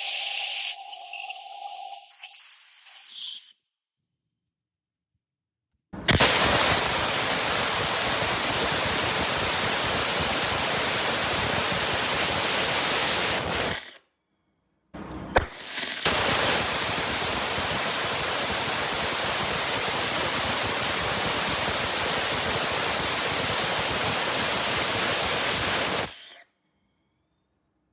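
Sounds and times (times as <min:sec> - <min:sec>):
sharp ignition crack: 0:06.0 - 0:08.3.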